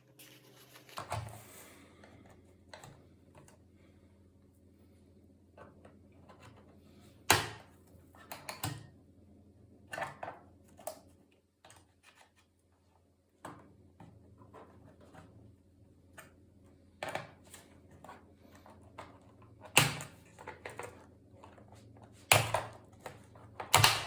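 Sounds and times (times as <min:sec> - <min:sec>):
plastic laptop case clicks: 0:22.3 - 0:24.0.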